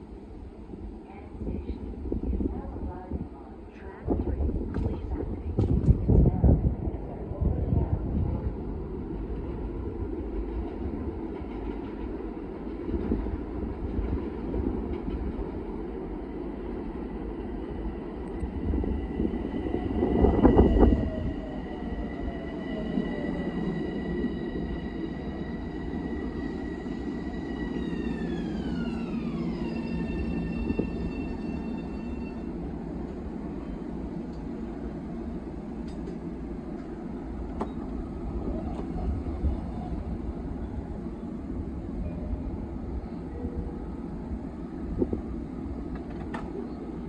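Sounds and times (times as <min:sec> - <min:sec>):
rush of passing train: 0:00.0 - 0:47.0
train wheels rumbling on rails: 0:01.1 - 0:16.2, 0:17.3 - 0:42.4, 0:43.0 - 0:47.0
electric train propulsion whine: 0:18.4 - 0:34.7
train braking: 0:19.8 - 0:32.5.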